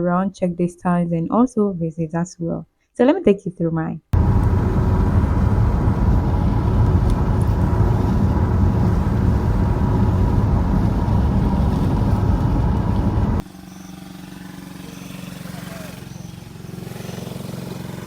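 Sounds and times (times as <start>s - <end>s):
car rumble: 4.2s - 13.4s
quiet vehicle hum: 4.2s - 18.0s.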